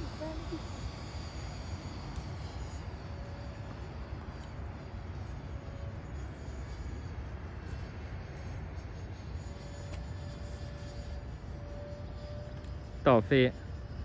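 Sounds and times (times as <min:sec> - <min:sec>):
electric fans high whine: 0:00.0 - 0:14.0.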